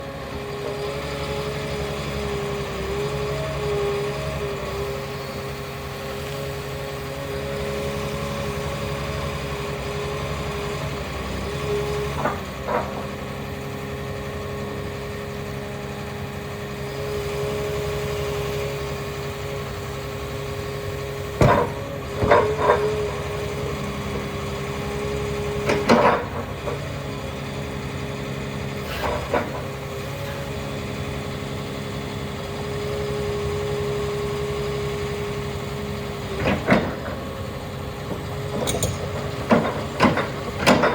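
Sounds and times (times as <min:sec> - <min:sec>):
excavator diesel engine running: 0:00.0 - 0:40.9
sharp metallic clanks: 0:38.6 - 0:40.2.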